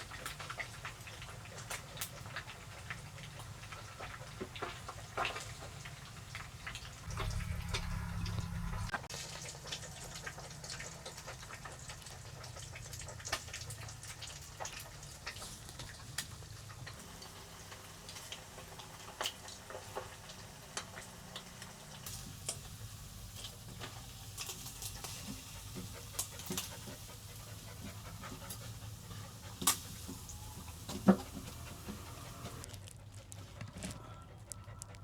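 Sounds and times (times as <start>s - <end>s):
dog panting: 22.6s - 35.0s.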